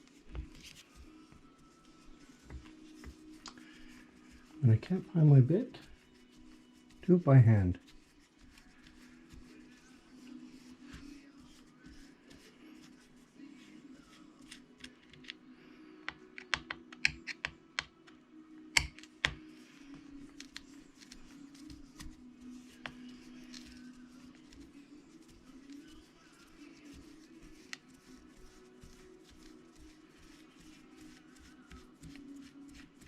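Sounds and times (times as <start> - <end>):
screwdriver clicks and taps: 16.1 - 17.9, 18.8 - 19.4.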